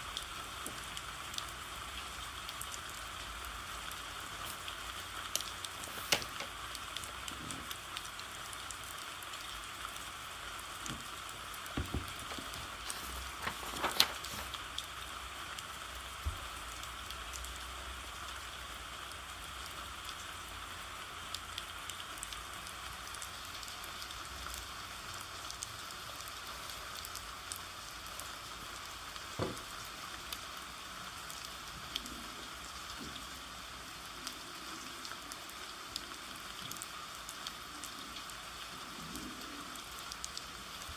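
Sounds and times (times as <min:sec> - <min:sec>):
rain hissing: 0:00.0 - 0:17.9, 0:23.0 - 0:35.6.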